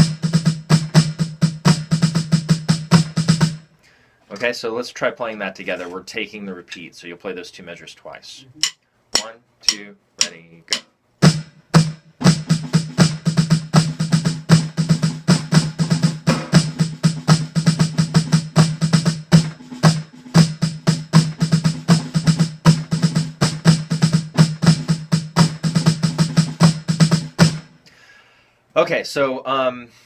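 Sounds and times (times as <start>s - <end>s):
snare drum playing: 0.0s - 3.6s, 8.6s - 27.7s.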